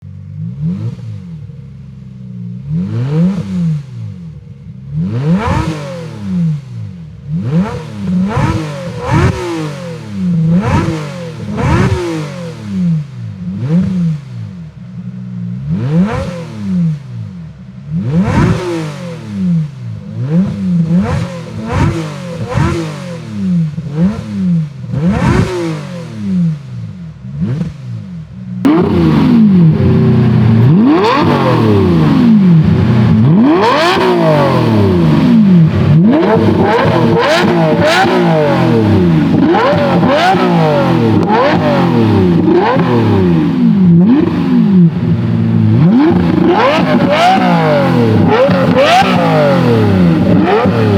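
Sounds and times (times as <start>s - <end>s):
sports car engine revving: 0.0s - 50.9s.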